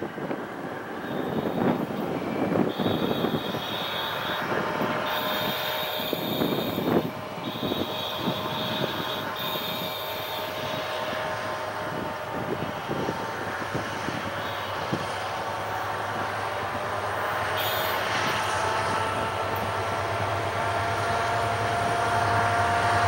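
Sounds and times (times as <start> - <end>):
freight train wagons rolling: 0.0 - 23.0
high ringing tone: 1.0 - 11.1.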